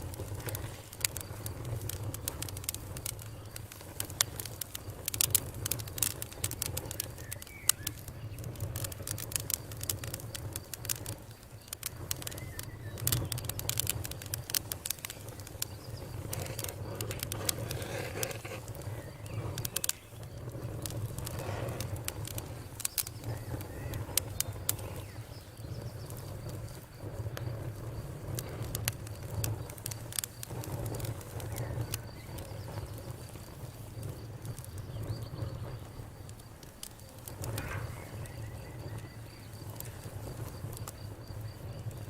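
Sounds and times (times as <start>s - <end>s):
fire popping and snapping: 0.0s - 42.0s
low rush of flames: 0.0s - 42.0s.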